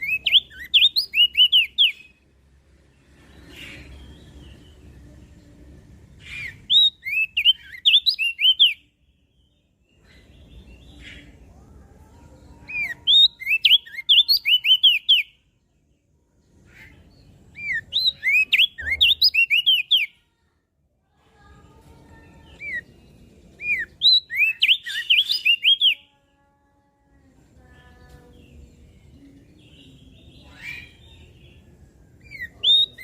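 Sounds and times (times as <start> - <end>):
bird singing whistled notes: 0.0 - 2.3, 6.2 - 11.4, 12.6 - 15.4, 16.8 - 20.2, 22.4 - 26.1, 28.5 - 33.0.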